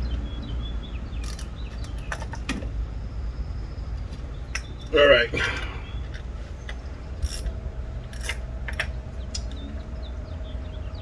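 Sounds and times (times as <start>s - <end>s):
metal tools clicking and scraping: 1.2s - 2.6s, 4.5s - 9.6s.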